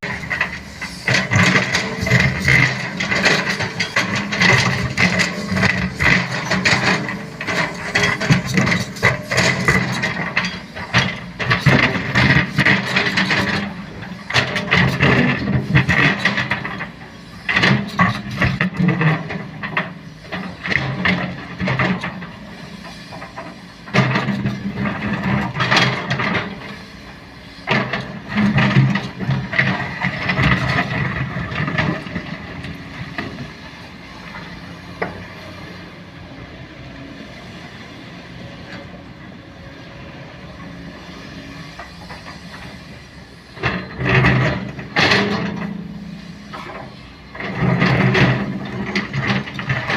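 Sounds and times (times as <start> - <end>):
bucket clanking and scraping: 0.0 - 22.3, 43.6 - 49.9
excavator diesel engine: 0.0 - 49.9.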